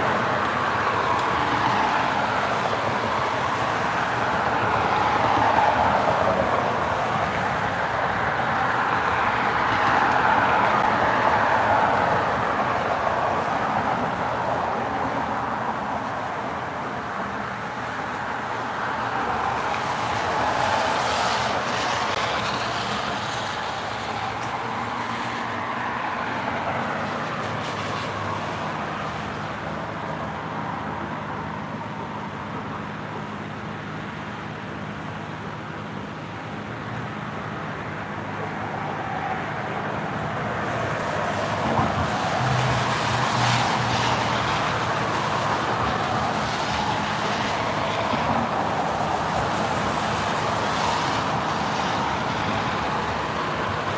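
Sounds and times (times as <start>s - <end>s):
tyre and road hiss: 17.2s - 31.8s, 34.8s - 53.9s.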